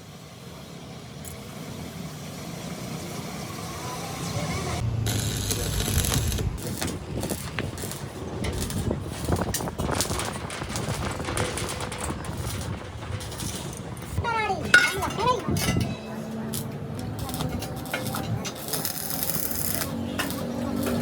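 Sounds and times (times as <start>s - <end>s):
loud noisy burst: 4.8s - 8.9s
low rumble: 4.8s - 14.2s
sharp knocks and clatter: 6.7s - 16.0s.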